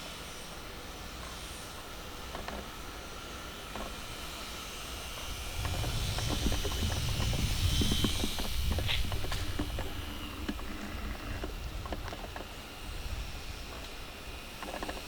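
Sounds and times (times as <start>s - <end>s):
faint high whine: 0.0s - 15.0s
steady hiss: 0.0s - 15.0s
wind buffeting microphone: 4.9s - 14.4s.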